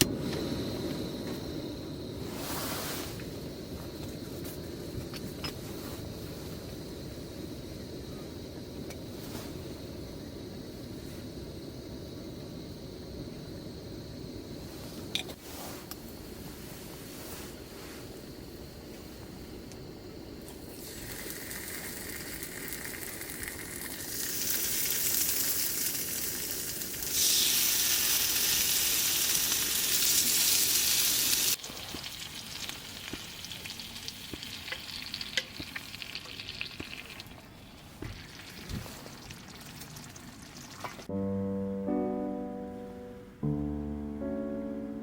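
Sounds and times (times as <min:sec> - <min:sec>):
food sizzling in a frying pan: 0:20.6 - 0:41.1.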